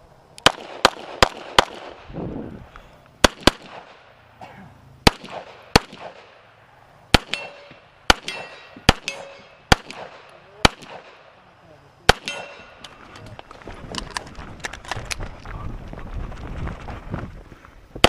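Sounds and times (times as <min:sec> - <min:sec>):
steel target ringing: 0:07.2 - 0:09.6, 0:12.2 - 0:12.8
handgun shots: 0:07.2 - 0:11.2, 0:12.1 - 0:12.7.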